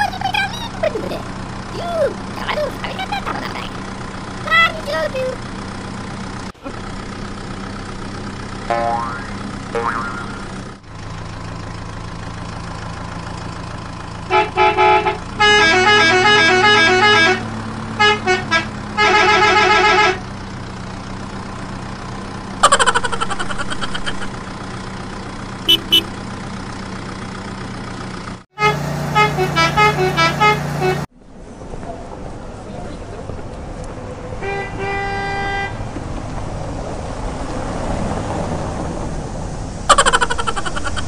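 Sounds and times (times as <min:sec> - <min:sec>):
electronic beeping horn tones: 0:25.7 - 0:26.2.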